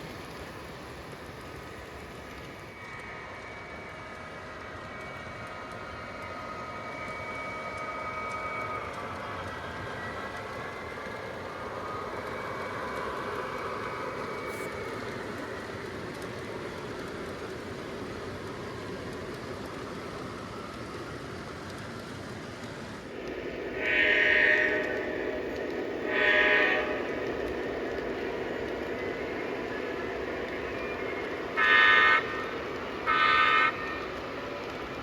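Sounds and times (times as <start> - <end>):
model train rolling rumble: 0.0 - 35.0
faint whine: 23.0 - 35.0.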